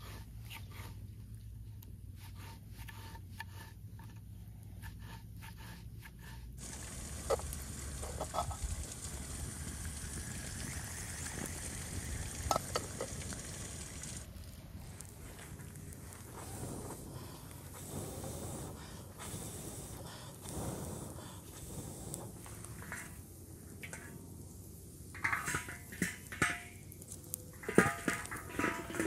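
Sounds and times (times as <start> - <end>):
food sizzling in hot oil: 6.6 - 14.3.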